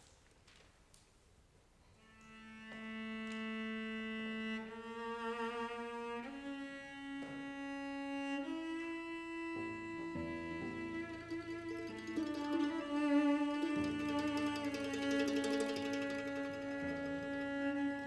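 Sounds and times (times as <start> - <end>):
bowed string instrument: 2.0 - 18.0
lower accompanying notes: 8.0 - 18.0.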